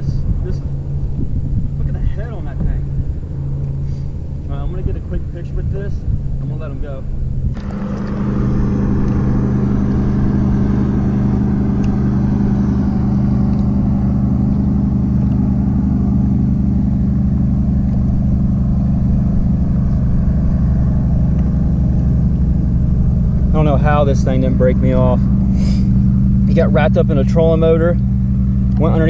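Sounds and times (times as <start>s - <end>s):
boat engine humming: 0.0s - 29.0s.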